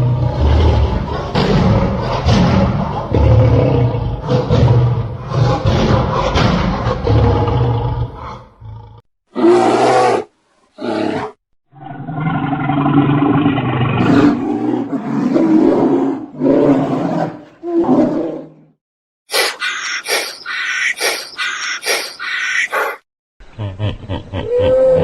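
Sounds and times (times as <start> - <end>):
lion roaring: 0.0 - 18.6.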